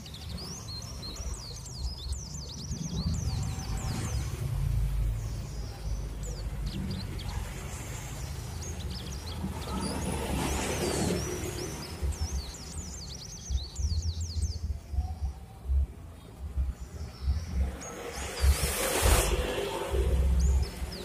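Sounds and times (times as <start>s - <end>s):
small birds chirping: 0.0s - 21.0s
steady low rumble: 11.2s - 21.0s.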